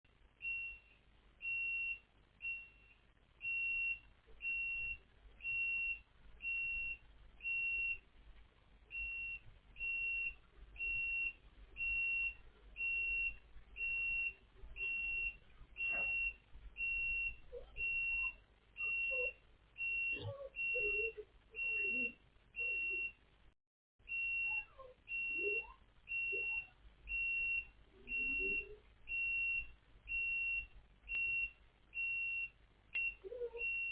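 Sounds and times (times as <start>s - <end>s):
warning beeper beeping: 8.9s - 23.2s, 24.1s - 33.9s.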